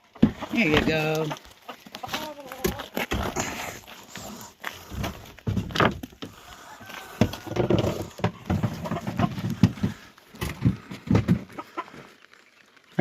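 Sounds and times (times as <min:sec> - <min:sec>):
chickens scrabbling and flapping: 0:00.0 - 0:13.0.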